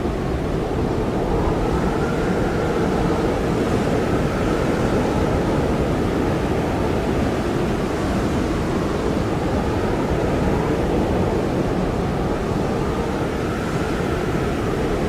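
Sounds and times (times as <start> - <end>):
wind blowing with whistling: 0.0 - 15.0.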